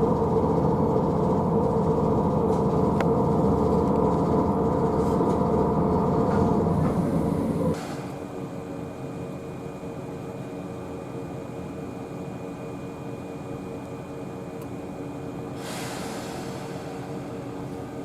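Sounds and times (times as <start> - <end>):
electric train hum: 0.0 - 18.0
brief hiss: 15.6 - 17.1.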